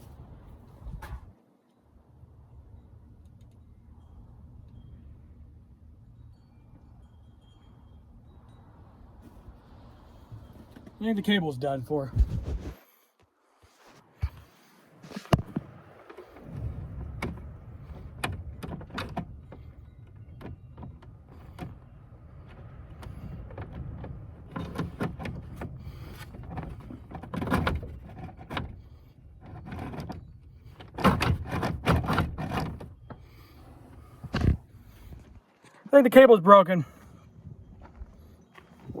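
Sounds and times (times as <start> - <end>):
choke cable clicking and scraping: 15.1 - 35.9.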